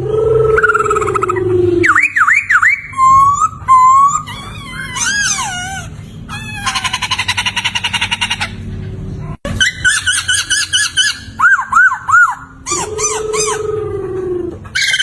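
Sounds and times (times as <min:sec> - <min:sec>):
laughingthrush whistling song: 0:00.5 - 0:04.4, 0:09.6 - 0:13.6.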